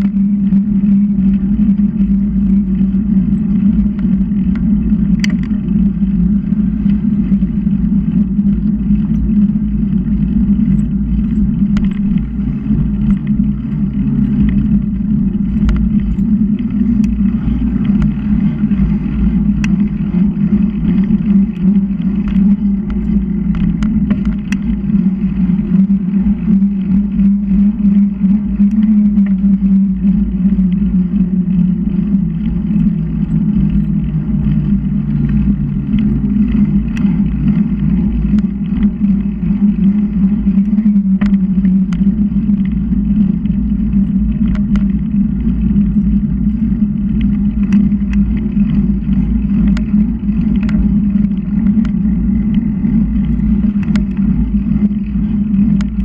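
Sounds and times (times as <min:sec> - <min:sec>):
bicycle road noise hum: 0:00.0 - 0:56.0
faint clicks: 0:47.0 - 0:56.0.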